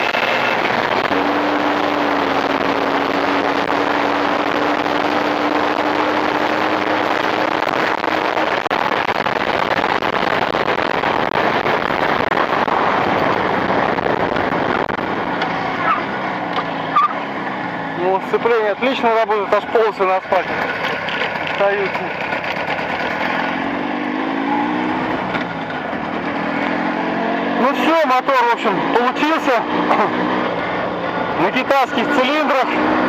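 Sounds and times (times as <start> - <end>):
wind rushing over microphone: 0.0 - 18.8
motorcycle engine running: 0.0 - 33.0.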